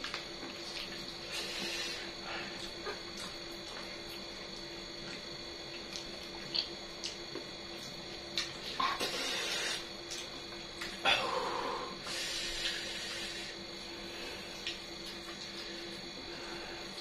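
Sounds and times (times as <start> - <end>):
steady background hum: 0.0 - 17.0
chewing clicks and smacks: 2.6 - 4.4, 5.0 - 8.7, 10.0 - 11.0, 14.6 - 15.6.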